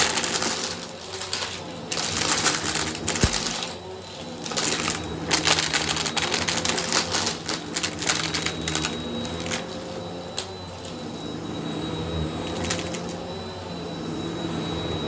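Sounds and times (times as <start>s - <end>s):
debris rattling through vacuum: 0.0s - 10.5s
vacuum cleaner motor humming: 0.0s - 15.0s.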